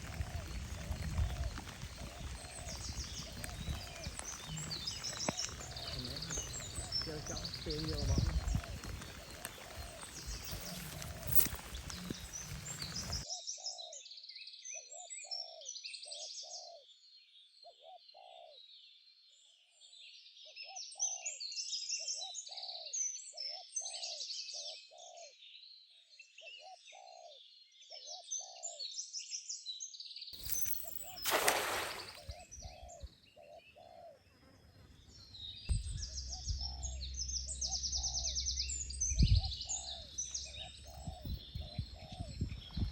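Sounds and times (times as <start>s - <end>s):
low round bird call: 0.0s - 13.3s, 30.4s - 42.9s
birds chirping and twittering: 0.0s - 29.1s, 30.4s - 42.9s.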